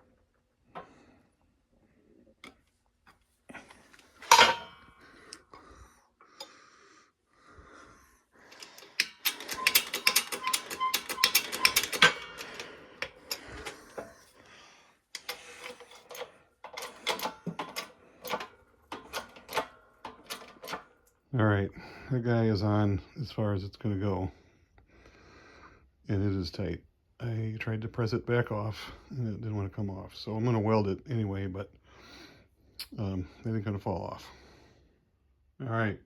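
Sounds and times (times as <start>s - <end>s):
shop press clicking and creaking: 4.2s - 4.8s, 8.5s - 14.4s, 15.2s - 21.0s
loud metal clank: 4.2s - 4.9s.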